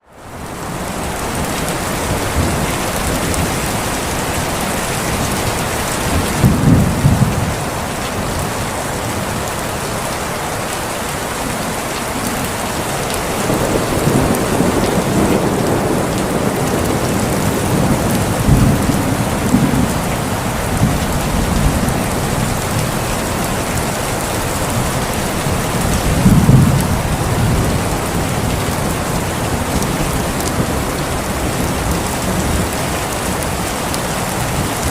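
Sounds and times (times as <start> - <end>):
heavy rain falling: 0.0 - 34.9
thunder rolling: 1.3 - 8.5, 13.3 - 32.8.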